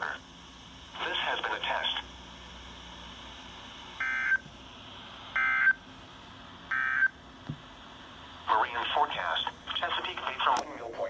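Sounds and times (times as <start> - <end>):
radio hiss: 0.0 - 4.0, 8.2 - 11.0.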